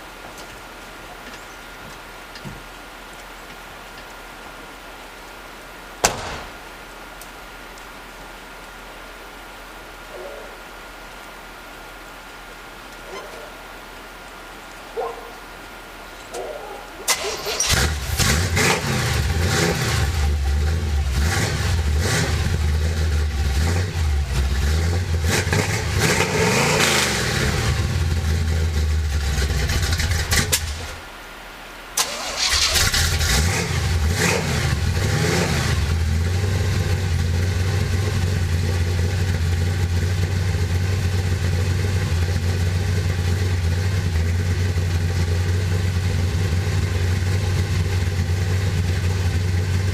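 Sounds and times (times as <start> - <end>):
pickup engine starting and revving: 17.1 - 31.0, 32.0 - 49.9
engine idling: 35.7 - 49.9.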